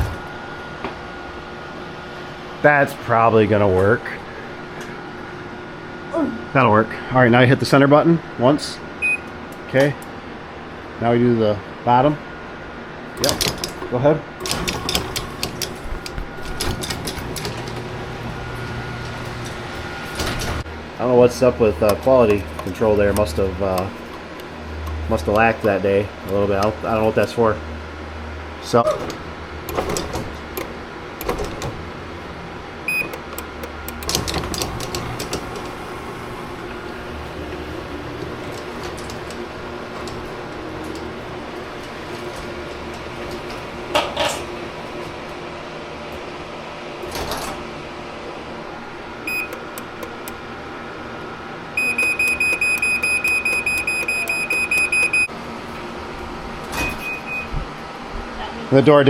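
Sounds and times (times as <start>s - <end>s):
garage door opener motor hum: 0.0s - 59.0s
door rattles and clicks: 33.9s - 35.7s
short high beep: 51.8s - 55.3s.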